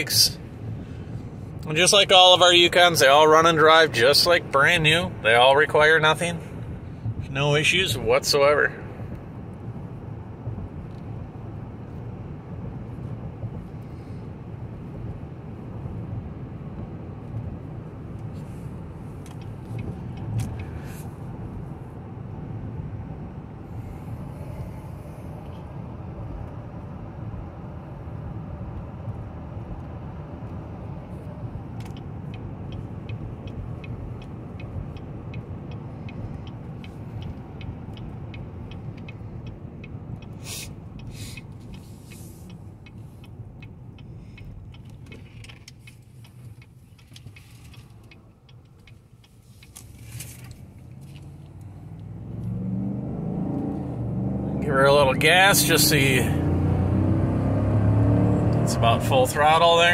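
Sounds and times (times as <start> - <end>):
road and tyre rumble: 0.0 - 59.9
light regular ticking: 16.6 - 21.7, 28.7 - 52.6.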